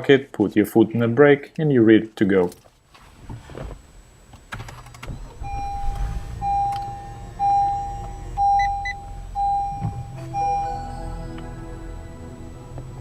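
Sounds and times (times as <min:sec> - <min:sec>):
car engine starting and idling: 0:04.5 - 0:13.0
repeating electronic tone: 0:05.3 - 0:11.3.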